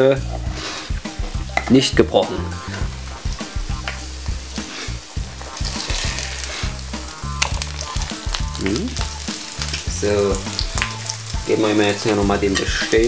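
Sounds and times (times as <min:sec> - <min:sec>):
background music with bass beat: 0:00.0 - 0:13.0
pancake sizzling in a pan: 0:02.6 - 0:13.0.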